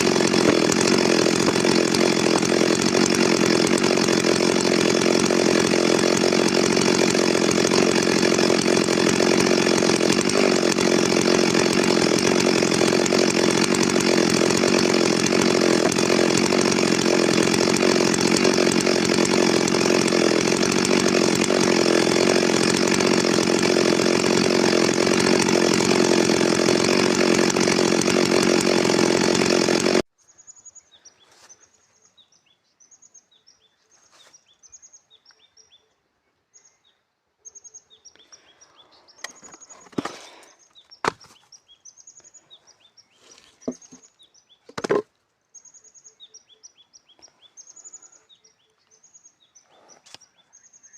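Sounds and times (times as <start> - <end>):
chainsaw running: 0.0 - 30.1, 39.2 - 41.4, 43.2 - 44.1, 44.7 - 45.1
faint bird chirps: 45.5 - 50.9.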